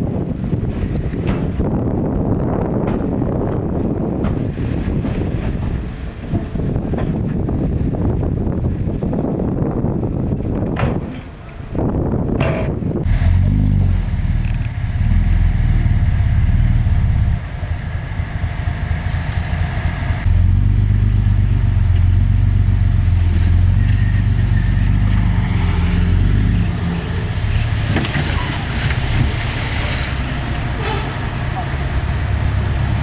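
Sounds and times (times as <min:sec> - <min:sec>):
earthmoving machinery diesel engine: 0:12.8 - 0:33.0.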